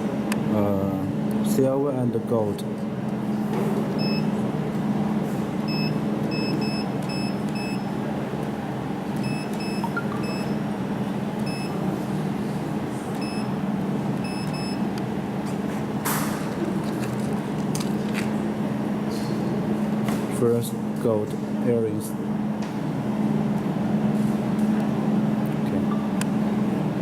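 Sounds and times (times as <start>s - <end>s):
short high-pitched beeps: 5.7s - 7.9s, 9.2s - 10.6s, 11.5s - 11.7s, 14.2s - 14.8s.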